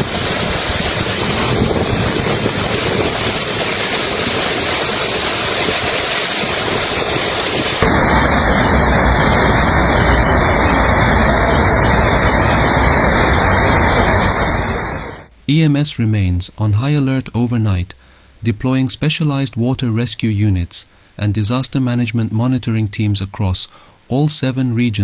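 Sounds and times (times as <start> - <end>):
floodwater rushing: 0.0 - 15.3.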